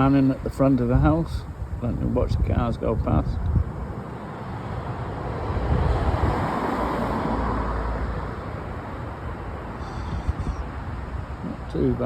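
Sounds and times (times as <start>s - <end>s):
car passing: 3.6s - 11.8s.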